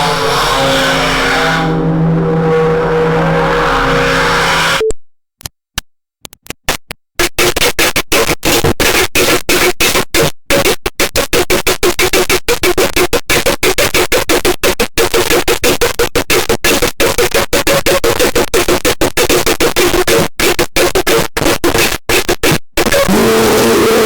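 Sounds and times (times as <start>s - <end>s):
steady droning pitch: 0.0s - 4.9s
stuttering harsh static: 0.0s - 4.9s, 6.7s - 24.0s.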